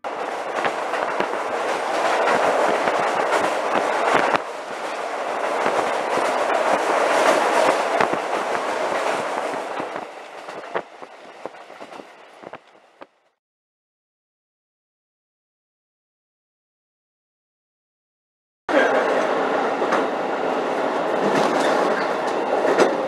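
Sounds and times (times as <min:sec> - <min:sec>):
train rumbling over rail bridge: 0:00.0 - 0:13.4, 0:18.7 - 0:23.0
wheels clicking and clacking: 0:00.1 - 0:13.3.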